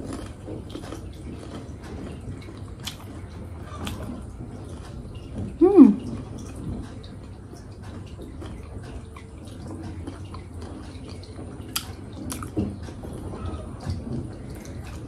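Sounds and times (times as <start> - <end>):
person chewing: 0.0 - 5.0, 7.9 - 12.6
low background hum: 0.0 - 15.0.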